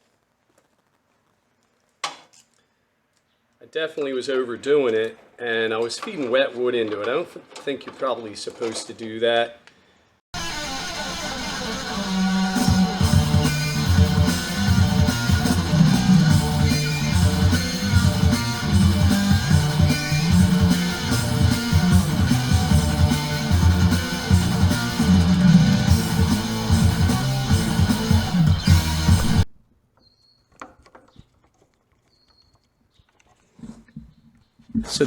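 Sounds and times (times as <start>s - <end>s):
guitar-led music with beat: 10.4s - 29.4s.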